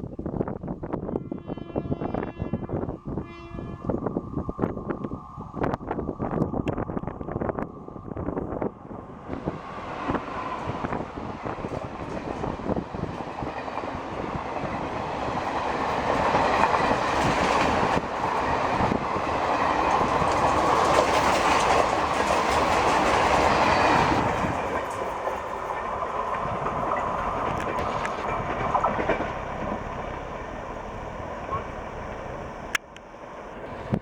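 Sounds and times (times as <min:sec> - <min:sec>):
train wheels clattering on rails: 0:09.8 - 0:33.0.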